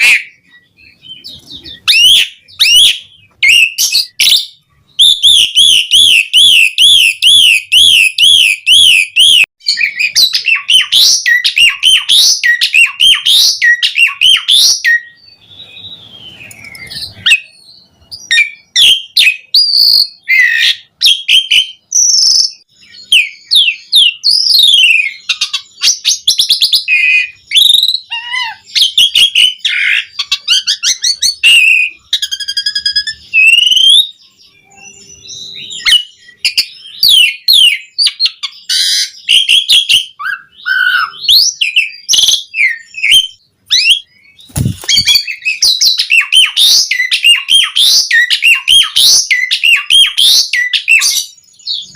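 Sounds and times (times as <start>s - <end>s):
starling singing: 0.0s - 51.9s
short low thump: 44.5s - 45.1s.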